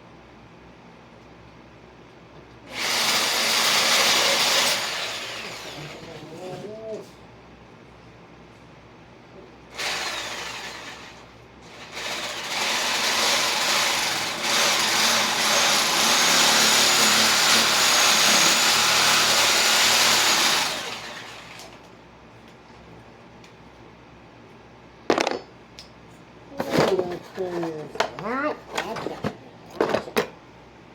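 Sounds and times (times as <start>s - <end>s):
reciprocating saw cutting wood: 11.9s - 21.5s.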